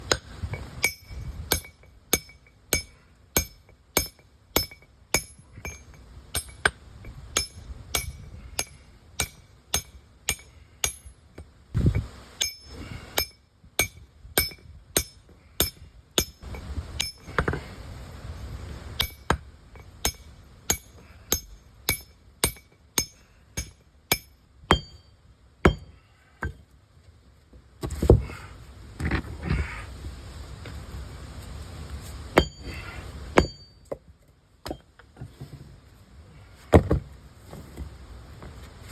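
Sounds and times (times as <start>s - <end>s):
hammer striking steel tools: 0.8s - 6.8s, 7.4s - 11.2s, 12.4s - 17.5s, 19.0s - 25.1s.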